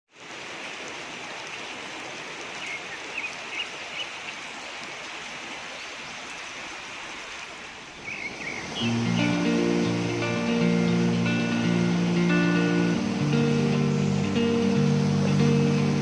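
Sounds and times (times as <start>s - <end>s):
running water: 0.1s - 16.0s
bird chirps: 8.0s - 9.5s.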